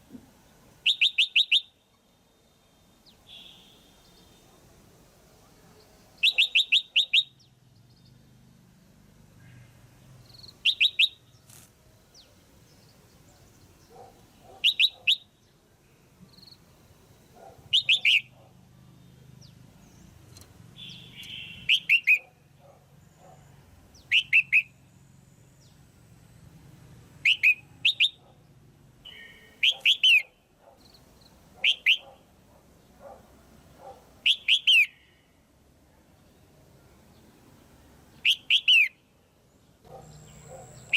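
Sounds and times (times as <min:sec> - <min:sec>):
bulbul calling sharp notes: 0:17.7 - 0:18.3, 0:20.8 - 0:22.3, 0:27.2 - 0:28.2, 0:29.0 - 0:30.3.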